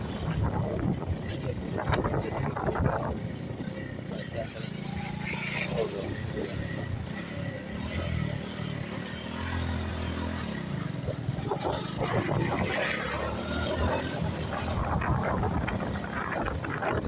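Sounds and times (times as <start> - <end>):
wind buffeting microphone: 0.0 - 4.6, 10.5 - 17.0
motorcycle engine: 0.0 - 17.0.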